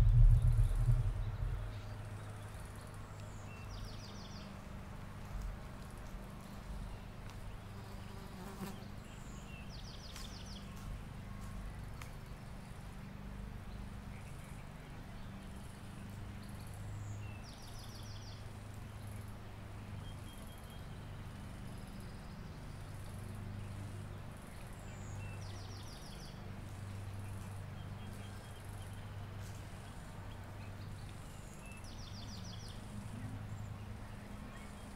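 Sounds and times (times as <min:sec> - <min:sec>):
bird singing trilled song: 0:00.0 - 0:04.6, 0:13.7 - 0:29.2, 0:30.6 - 0:34.9.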